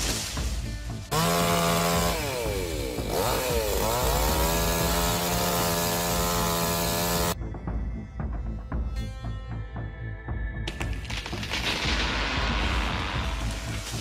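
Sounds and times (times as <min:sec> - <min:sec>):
chainsaw running at high revs: 0:01.1 - 0:07.4.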